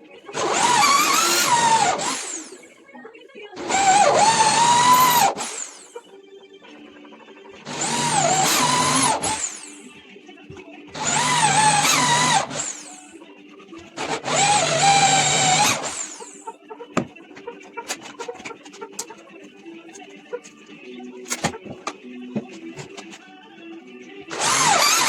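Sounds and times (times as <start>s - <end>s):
faint background music: 0.0s - 25.0s
power drill whining: 0.3s - 2.7s, 3.6s - 6.0s, 7.6s - 9.9s, 10.9s - 13.2s, 13.8s - 16.5s, 24.3s - 25.0s.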